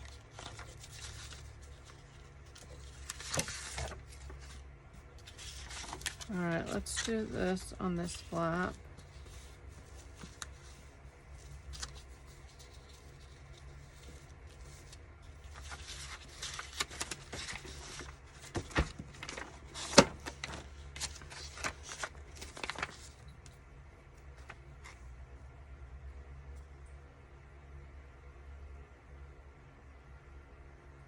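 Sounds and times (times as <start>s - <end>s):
paper rustling: 0.0s - 23.6s, 24.2s - 25.1s.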